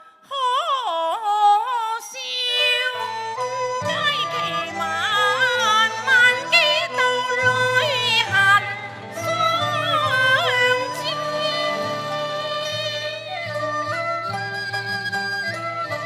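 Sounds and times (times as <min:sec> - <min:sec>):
opera accompaniment ensemble: 0:02.5 - 0:14.9.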